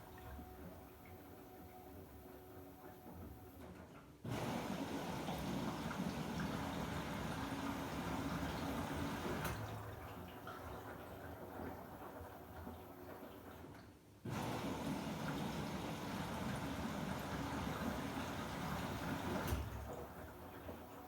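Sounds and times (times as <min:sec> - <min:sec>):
washing machine hum: 0:00.0 - 0:21.0
water rushing into washing machine: 0:04.2 - 0:21.0.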